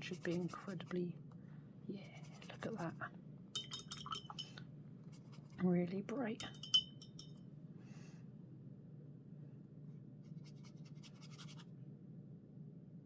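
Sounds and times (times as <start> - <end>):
paintbrush scratching on paper: 0.0 - 0.8, 10.3 - 11.7
low steady hum: 0.0 - 13.0.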